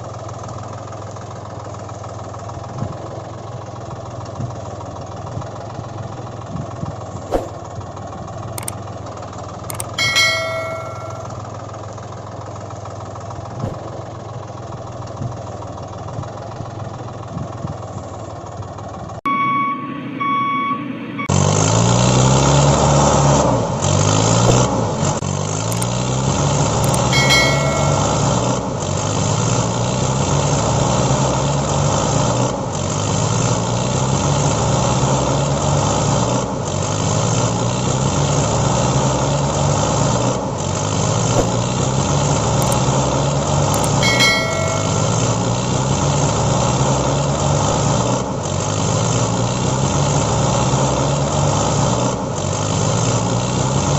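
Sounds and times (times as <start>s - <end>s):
truck engine running: 0.0s - 53.9s
high chirping tones: 9.7s - 11.4s, 19.3s - 21.6s, 26.9s - 28.5s, 43.8s - 45.4s.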